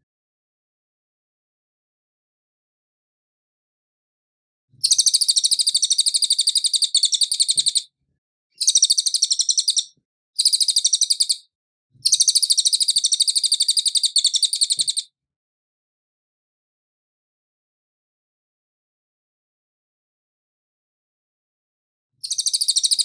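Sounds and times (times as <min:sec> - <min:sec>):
songbird high-pitched trills: 0:22.2 - 0:23.0.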